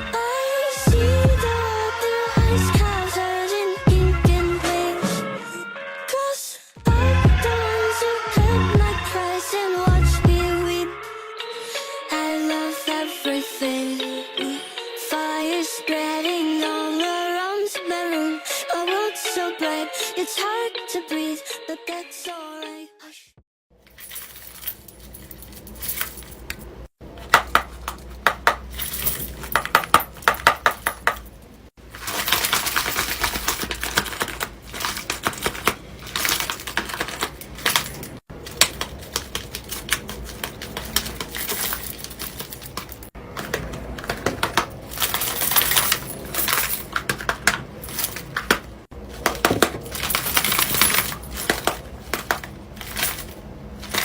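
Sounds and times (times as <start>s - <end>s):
stiff paper crinkling and clicking: 31.8s - 54.0s.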